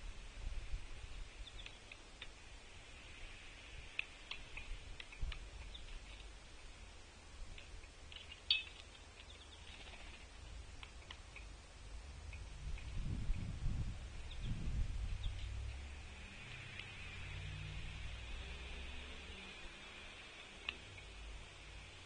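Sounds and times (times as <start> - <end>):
faint low outdoor rumble: 0.0 - 22.0
small birds chipping: 0.0 - 22.0.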